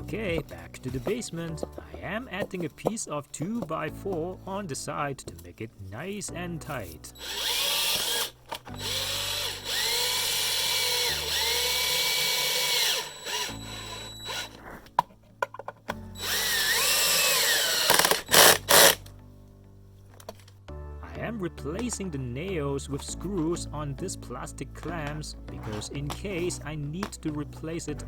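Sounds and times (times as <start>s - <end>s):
background music: 0.0s - 28.0s
power drill driving screws: 7.2s - 14.6s, 16.2s - 19.1s.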